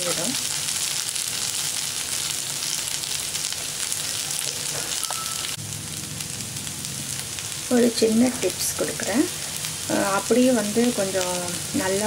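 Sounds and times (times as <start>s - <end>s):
potatoes sizzling in hot oil: 0.0s - 12.0s.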